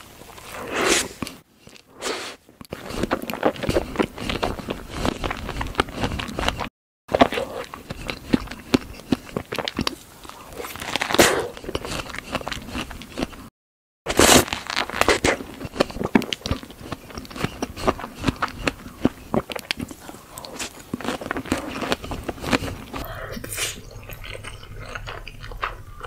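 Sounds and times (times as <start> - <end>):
mouth biting and chewing: 0.4 - 13.5, 14.1 - 26.0
breathy swells: 23.0 - 24.1.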